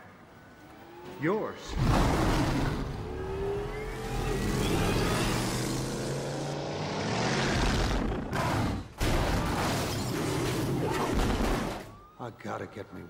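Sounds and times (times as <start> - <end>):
car engine revving and rumbling: 0.4 - 9.1.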